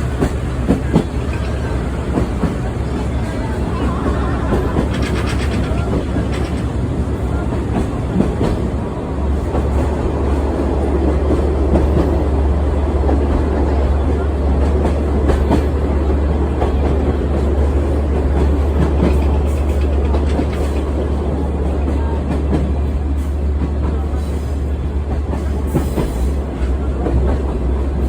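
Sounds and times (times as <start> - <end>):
wheels clattering over rails: 0.0 - 8.7, 16.5 - 21.2
train low rumble: 0.0 - 28.0.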